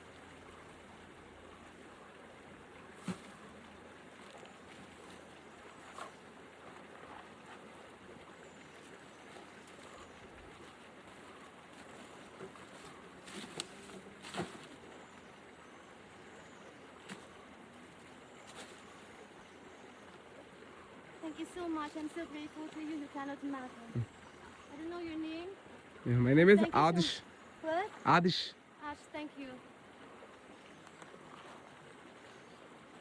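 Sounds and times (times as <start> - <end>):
outdoor background noise: 0.0 - 33.0.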